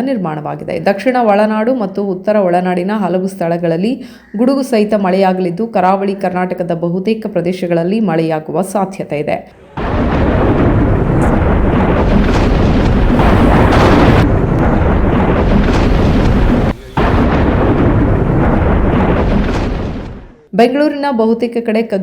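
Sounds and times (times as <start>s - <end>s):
heavy rain: 9.6s - 20.4s
thunder rumbling: 9.6s - 20.5s.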